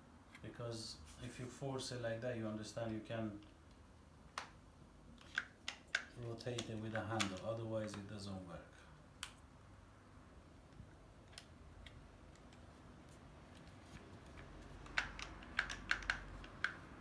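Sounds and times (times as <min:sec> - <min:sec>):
plastic parts clicking: 0:05.2 - 0:08.1, 0:13.5 - 0:17.0.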